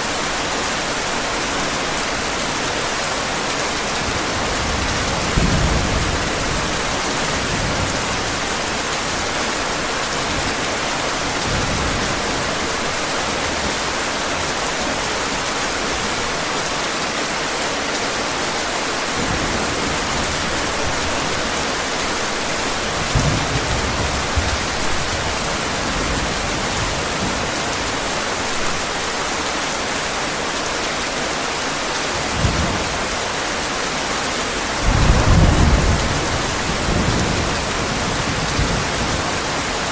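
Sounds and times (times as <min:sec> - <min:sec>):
heavy rain falling: 0:00.0 - 0:39.9
thunder rumbles: 0:04.1 - 0:09.3, 0:22.9 - 0:27.5, 0:34.8 - 0:39.6.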